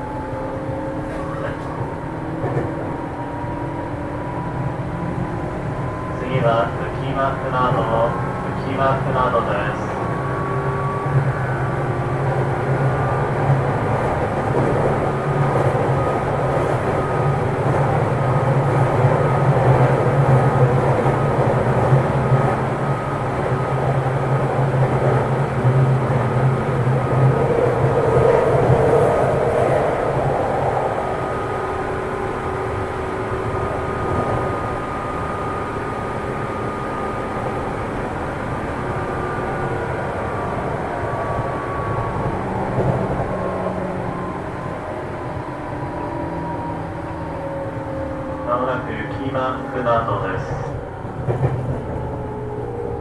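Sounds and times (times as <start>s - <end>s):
train wheels on rail: 9.0s - 30.9s, 48.8s - 53.0s.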